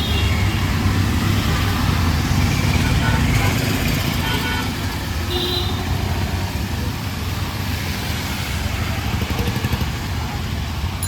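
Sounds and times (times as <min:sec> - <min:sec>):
vehicle engines running: 0:05.8 - 0:11.0.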